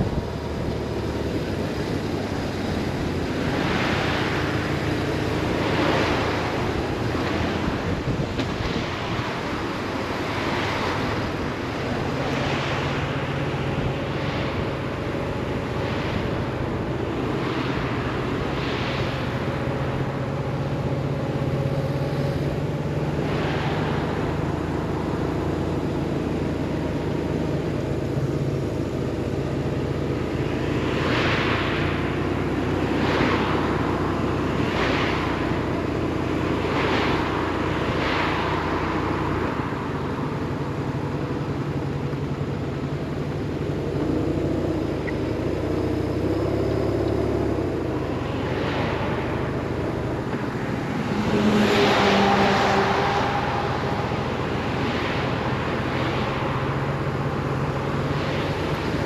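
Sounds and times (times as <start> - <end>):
wind noise: 0.0 - 26.9.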